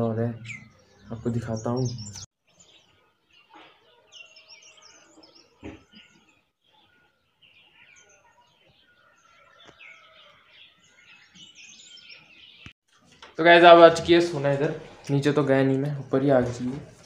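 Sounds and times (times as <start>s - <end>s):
small birds twittering faintly: 0.0s - 17.0s.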